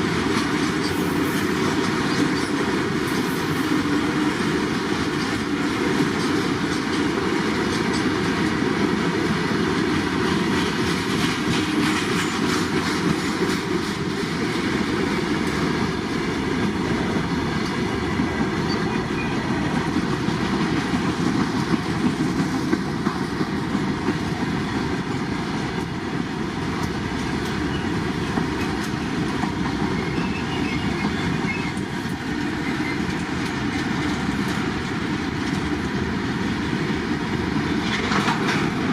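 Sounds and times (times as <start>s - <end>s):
train rolling rumble: 0.0s - 38.9s
wheels clicking over rail joints: 0.0s - 38.9s.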